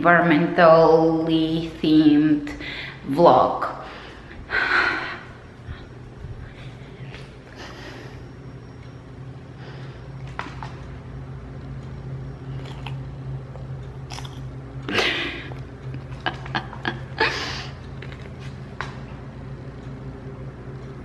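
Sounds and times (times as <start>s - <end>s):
low hum: 0.0s - 21.0s
toddler crunching celery: 12.5s - 13.1s, 13.9s - 14.5s, 18.0s - 18.6s.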